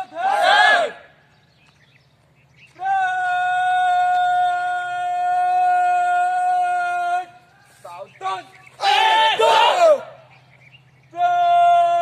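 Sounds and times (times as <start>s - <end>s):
drill commander shouting long command: 0.0s - 1.0s, 2.8s - 7.4s, 8.2s - 10.1s, 11.1s - 12.0s.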